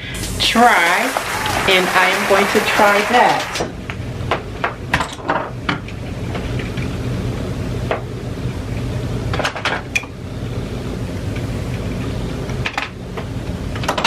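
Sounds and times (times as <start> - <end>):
steady low hum: 3.5 - 14.0.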